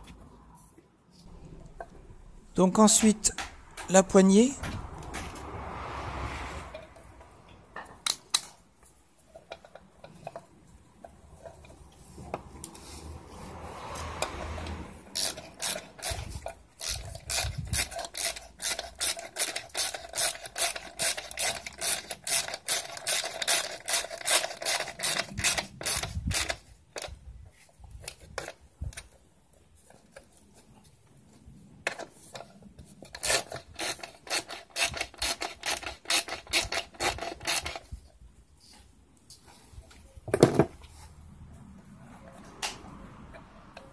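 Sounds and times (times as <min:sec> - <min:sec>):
hand tool rasping on metal: 0:33.2 - 0:37.8.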